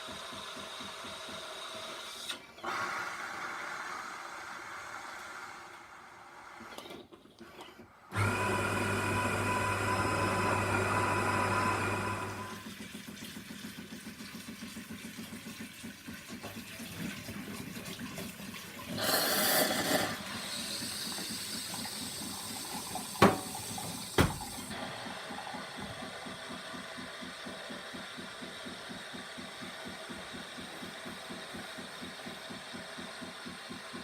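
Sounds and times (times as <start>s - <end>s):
espresso machine pump pulsing: 0.0s - 6.9s, 8.1s - 12.7s, 18.9s - 34.0s.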